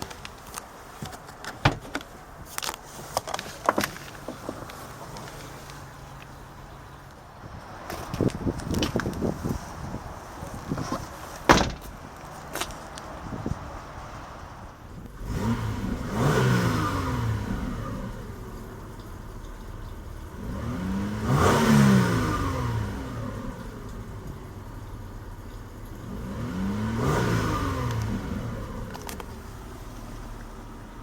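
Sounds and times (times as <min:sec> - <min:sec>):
car engine revving: 0:15.1 - 0:31.0.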